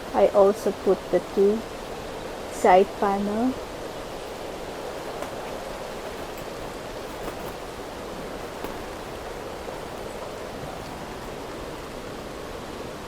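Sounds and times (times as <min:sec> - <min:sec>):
rain on fabric awning: 0:00.0 - 0:13.0.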